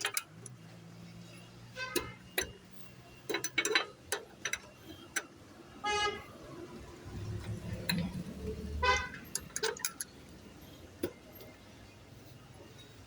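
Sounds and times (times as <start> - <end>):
metallic clicks of hand tools: 0.0 - 0.6, 9.0 - 10.1.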